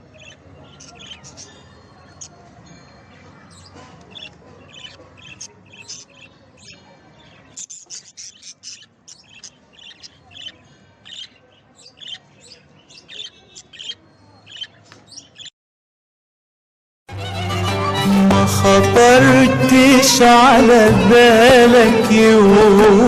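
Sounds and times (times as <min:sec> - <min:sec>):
lovebirds chirping: 0:00.0 - 0:15.5.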